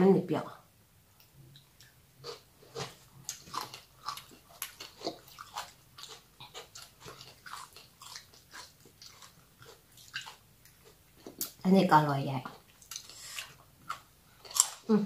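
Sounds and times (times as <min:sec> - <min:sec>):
wet crunchy chewing: 0:02.2 - 0:11.6.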